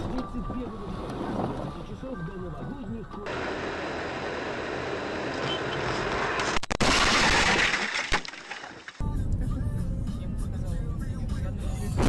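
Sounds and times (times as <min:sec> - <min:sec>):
vehicle engine and tyres: 0:00.0 - 0:06.6.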